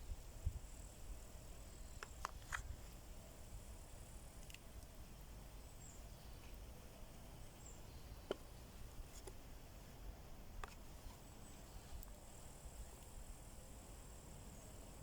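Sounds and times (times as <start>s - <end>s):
faint bird chirps: 5.6s - 6.7s, 7.3s - 8.8s, 11.2s - 12.1s.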